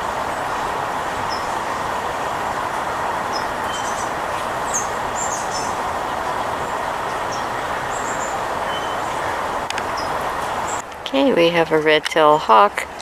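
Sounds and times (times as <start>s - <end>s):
steady rushing noise: 0.0s - 13.0s
high bird chirps: 3.3s - 5.8s, 7.1s - 10.8s.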